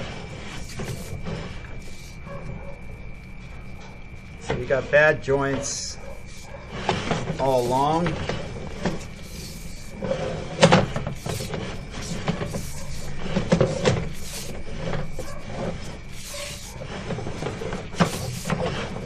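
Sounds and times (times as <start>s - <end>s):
faint steady high tone: 0.0s - 6.7s
camera knocking and scraping in pipe: 0.0s - 19.0s.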